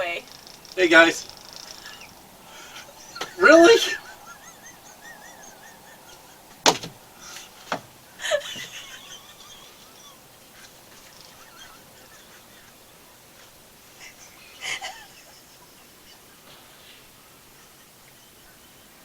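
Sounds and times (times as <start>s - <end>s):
woman giggling: 1.8s - 16.6s.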